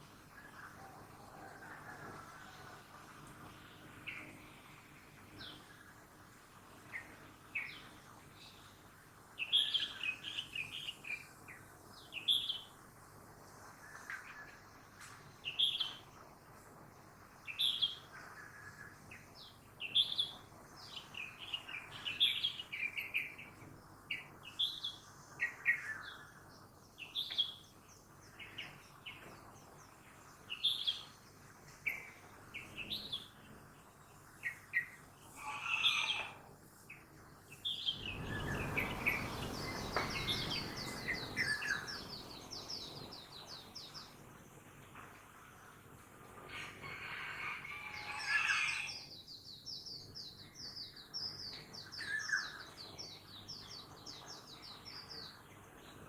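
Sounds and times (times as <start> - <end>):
birds chirping: 17.5 - 44.7.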